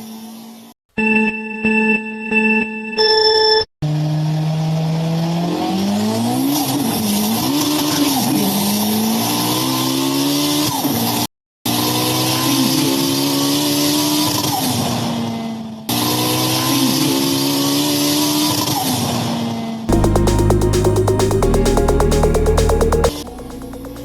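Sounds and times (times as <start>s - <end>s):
car engine revving: 19.9s - 24.0s.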